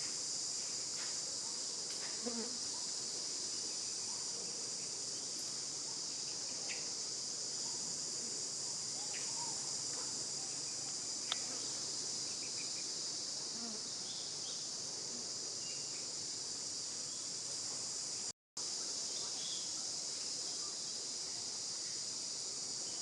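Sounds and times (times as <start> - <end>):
insect chorus drone: 0.0 - 23.0
faint chirps: 8.7 - 12.9, 19.0 - 22.0.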